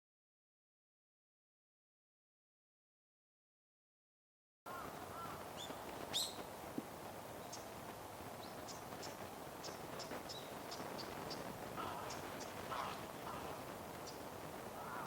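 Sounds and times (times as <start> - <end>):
small birds chirping: 4.7 - 6.6, 7.3 - 15.0.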